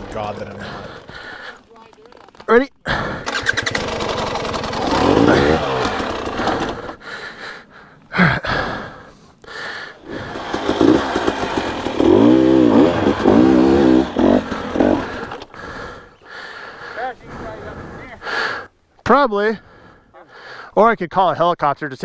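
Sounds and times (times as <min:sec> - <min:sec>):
dirt bike engine revving: 0:00.0 - 0:01.1, 0:03.2 - 0:07.7, 0:09.6 - 0:16.1.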